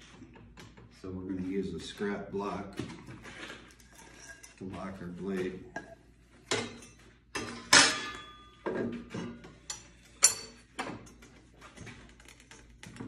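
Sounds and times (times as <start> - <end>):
knocks and metal clinks: 3.6 - 13.0.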